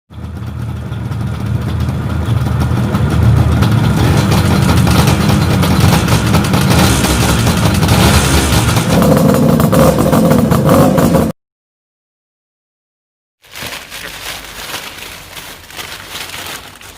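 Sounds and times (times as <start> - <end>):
two-stroke motorcycle engine running: 0.1 - 11.3.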